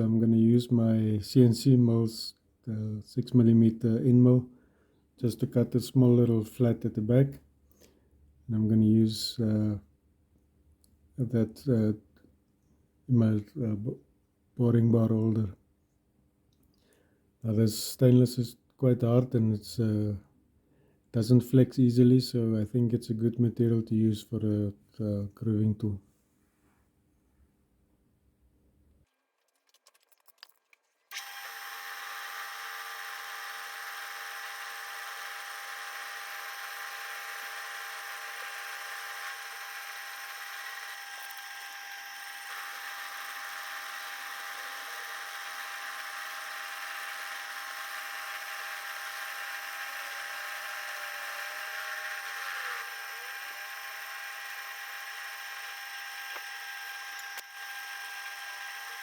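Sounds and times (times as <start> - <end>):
mill spindle whine: 31.1 - 59.0.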